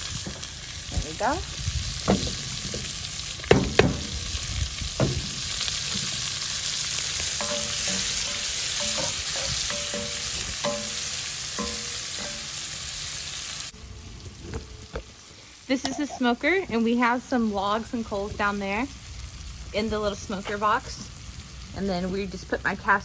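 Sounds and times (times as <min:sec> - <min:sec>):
food sizzling in a pot: 0:00.0 - 0:23.0
sharp knocks: 0:03.5 - 0:04.2.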